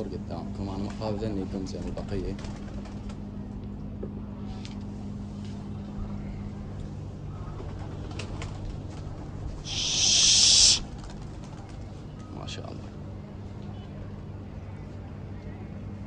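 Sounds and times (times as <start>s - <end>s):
pigeons cooing: 9.6s - 11.2s.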